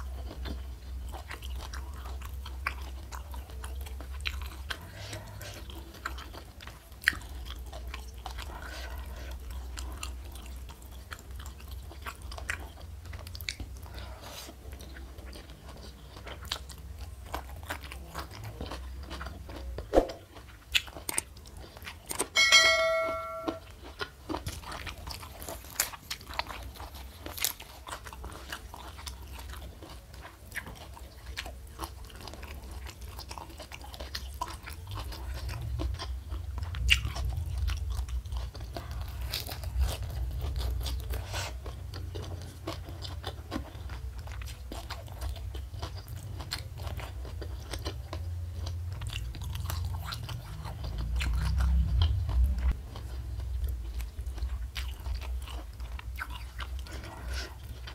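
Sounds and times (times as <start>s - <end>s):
crunchy food chewing: 0.0s - 22.4s, 23.5s - 57.9s
ringing clink: 22.4s - 23.6s.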